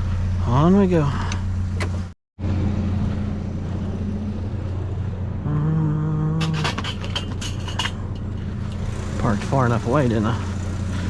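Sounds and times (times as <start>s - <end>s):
truck engine humming: 0.0s - 11.0s
pitched drone: 2.4s - 10.3s.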